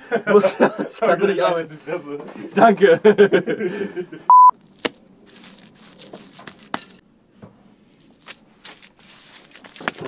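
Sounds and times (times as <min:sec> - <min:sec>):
electronic beep: 0:04.3 - 0:04.5
hands working wet mortar: 0:04.8 - 0:07.0, 0:08.0 - 0:10.0.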